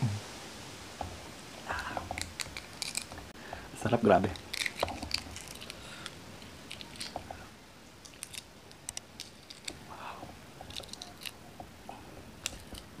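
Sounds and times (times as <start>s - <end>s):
egg shell being peeled: 1.7s - 3.2s, 4.2s - 7.3s, 8.0s - 9.9s, 10.6s - 11.4s, 12.4s - 13.0s.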